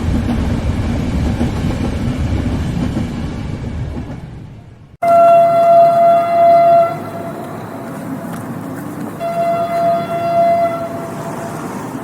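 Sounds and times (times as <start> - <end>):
rolling train rumble: 0.0 - 12.0
train horn blasts: 5.0 - 7.4, 9.2 - 11.2.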